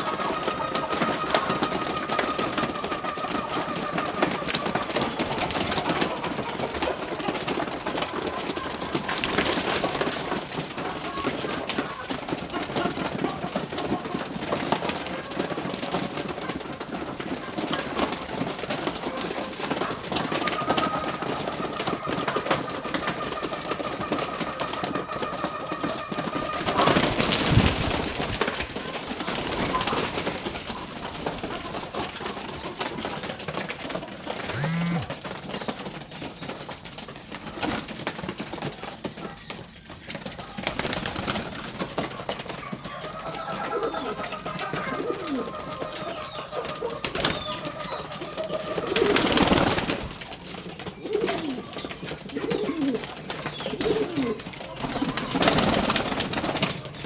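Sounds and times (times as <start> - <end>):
pigeons clicking and rustling: 0.0 - 57.0
pigeon cooing: 34.4 - 35.2, 42.9 - 50.0, 50.8 - 56.2.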